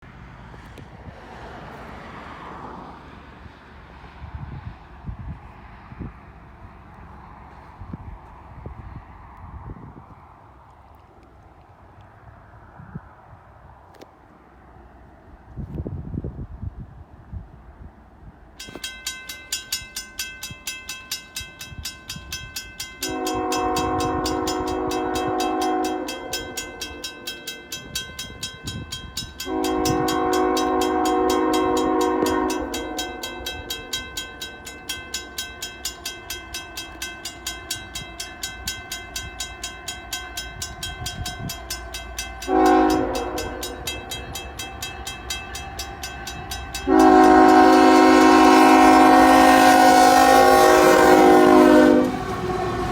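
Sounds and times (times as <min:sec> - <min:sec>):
warning bell dinging: 0:18.6 - 0:52.1
locomotive air horn blasts: 0:23.0 - 0:27.4, 0:29.4 - 0:34.0, 0:42.3 - 0:52.9.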